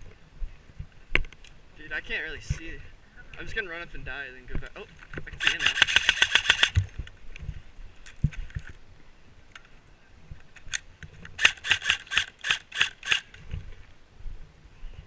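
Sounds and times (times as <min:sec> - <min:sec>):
airsoft rifle shots: 0:05.4 - 0:06.9, 0:11.4 - 0:13.3.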